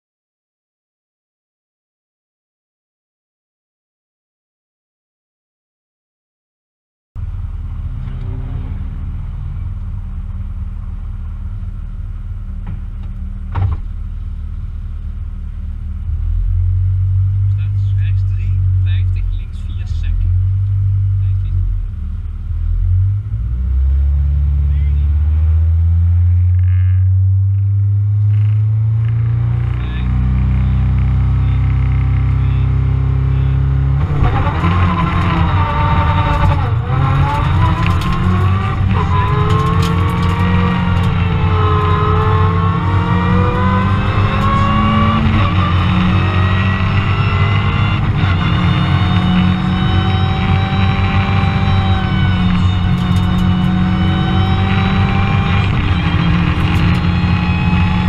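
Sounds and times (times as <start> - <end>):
car engine idling from inside cabin: 7.2 - 20.4, 21.1 - 25.1, 29.8 - 33.8, 51.7 - 54.0
car engine idling: 7.2 - 58.0.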